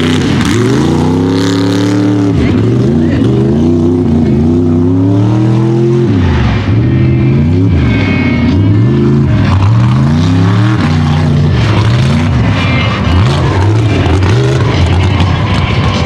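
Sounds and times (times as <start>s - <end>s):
truck engine at full throttle: 0.0s - 16.0s.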